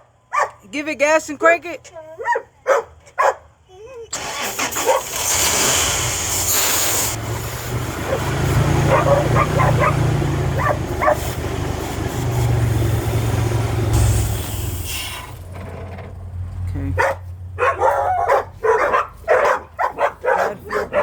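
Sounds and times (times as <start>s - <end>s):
dog barking: 0.0s - 0.7s, 2.2s - 3.5s, 4.8s - 5.1s, 7.9s - 11.4s, 17.0s - 21.0s
pickup truck engine revving: 4.2s - 21.0s
aerosol spray hiss: 6.1s - 7.2s.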